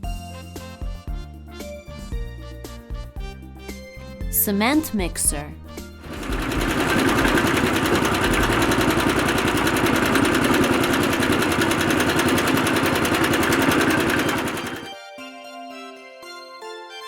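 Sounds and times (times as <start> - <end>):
light music: 0.0 - 11.0, 12.9 - 17.0
engine with mechanical rattle: 6.0 - 14.9.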